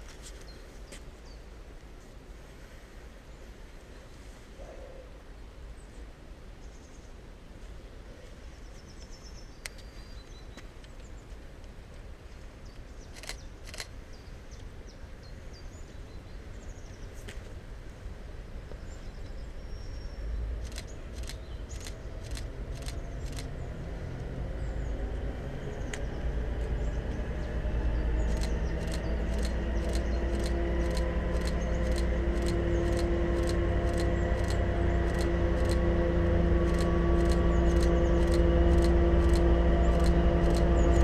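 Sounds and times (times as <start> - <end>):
diesel locomotive rumble: 20.2 - 41.0
sharp clicks: 20.6 - 23.5, 28.3 - 35.8, 36.7 - 40.7.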